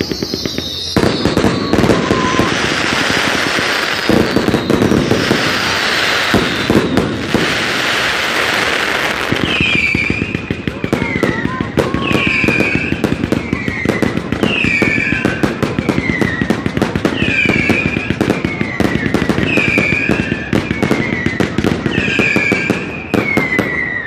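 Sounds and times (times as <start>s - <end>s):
fireworks bangs and crackles: 0.0s - 24.0s
high firework whistle: 0.0s - 24.0s.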